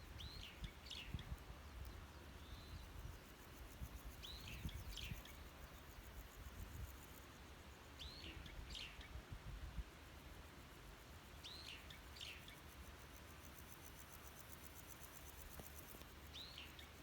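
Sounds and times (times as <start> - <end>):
small birds chirping: 0.2 - 6.3.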